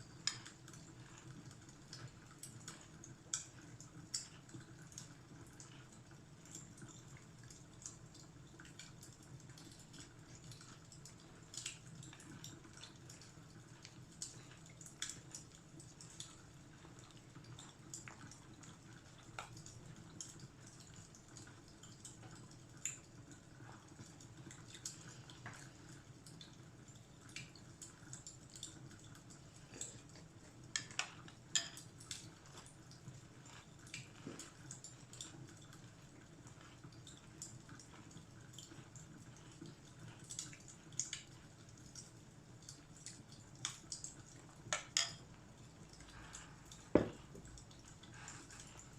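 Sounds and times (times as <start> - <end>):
fireplace fire crackling: 0.0 - 48.9.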